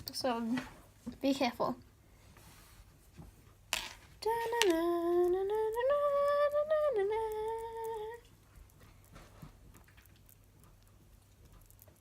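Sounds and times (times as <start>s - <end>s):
person humming a slow tune: 4.2s - 8.3s.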